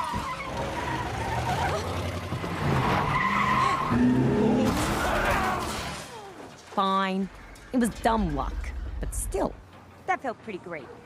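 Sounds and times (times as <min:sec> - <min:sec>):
car tyres skidding and squealing: 0:00.0 - 0:06.1.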